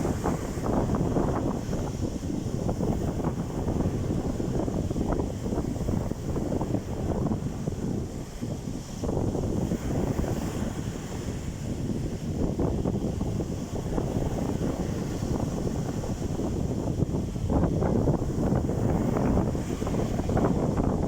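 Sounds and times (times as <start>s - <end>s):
wind buffeting microphone: 0.0s - 21.0s
rushing water: 13.4s - 21.0s.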